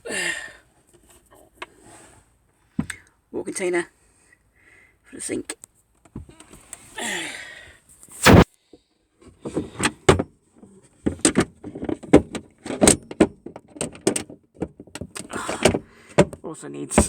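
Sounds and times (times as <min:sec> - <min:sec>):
knocks and clatters: 0:11.0 - 0:16.4.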